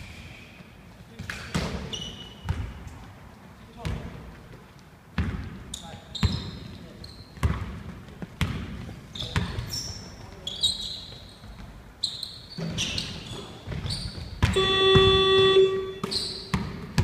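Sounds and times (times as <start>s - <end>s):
sneaker squeaks: 0.0s - 3.1s, 5.2s - 17.0s
basketball bouncing on a court: 2.4s - 2.8s, 3.8s - 4.3s, 5.1s - 6.7s, 7.3s - 10.0s, 12.6s - 17.0s
electronic game buzzer: 14.6s - 16.0s.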